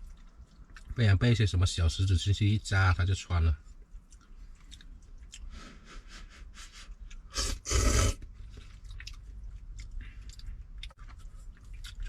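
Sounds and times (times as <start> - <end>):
wet chewing and mouth smacks: 0.0 - 1.0, 3.6 - 5.6, 6.9 - 7.4, 8.2 - 12.0.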